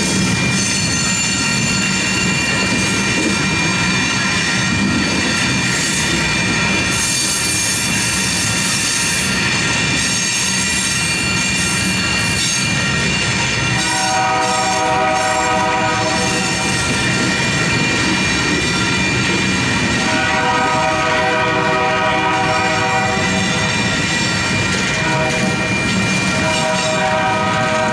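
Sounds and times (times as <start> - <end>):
freight train rumble and wheel noise: 0.0 - 27.9
high steady wheel squeal: 0.0 - 27.9
train horn blasts: 13.7 - 16.8, 20.0 - 23.6, 24.9 - 25.6, 26.4 - 27.9.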